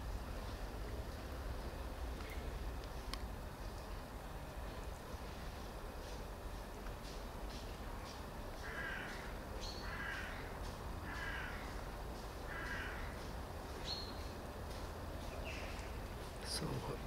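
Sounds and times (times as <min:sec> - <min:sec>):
low outdoor rumble: 0:00.0 - 0:17.0
bird harsh calls: 0:08.6 - 0:11.8, 0:12.5 - 0:14.2.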